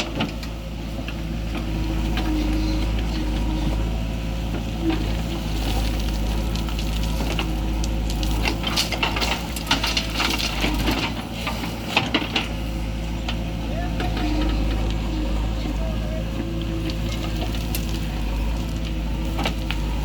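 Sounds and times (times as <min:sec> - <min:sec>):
diesel machinery engine running: 0:00.0 - 0:20.0
crackle of short clicks and knocks: 0:05.7 - 0:12.5.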